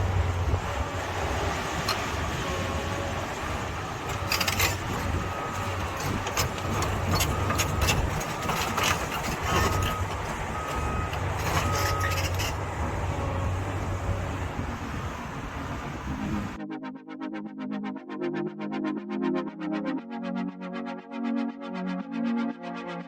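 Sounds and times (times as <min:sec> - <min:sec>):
diesel engine running under load: 0:00.0 - 0:16.6
bucket knocking and scraping soil: 0:04.1 - 0:12.6.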